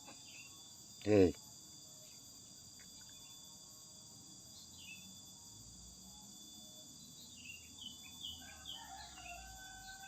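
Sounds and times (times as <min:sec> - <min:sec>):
bird chirps: 0:00.0 - 0:00.7, 0:04.5 - 0:05.3, 0:06.1 - 0:10.0
insects droning: 0:00.0 - 0:10.0.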